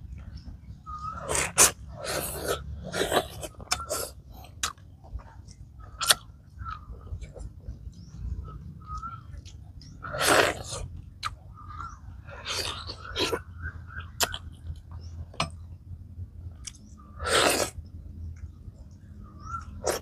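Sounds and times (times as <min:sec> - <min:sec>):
person chewing: 0:01.3 - 0:07.5, 0:14.2 - 0:14.9
lip smacks: 0:03.4 - 0:04.0.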